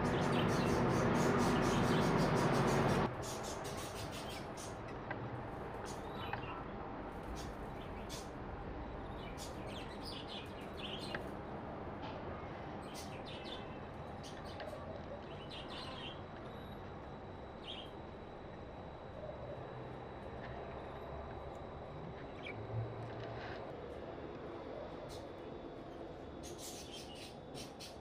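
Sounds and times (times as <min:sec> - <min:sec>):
small birds chirping: 0:00.0 - 0:05.0, 0:05.8 - 0:08.3, 0:09.0 - 0:11.3, 0:12.8 - 0:18.4, 0:25.1 - 0:28.0
steady background hum: 0:00.0 - 0:28.0.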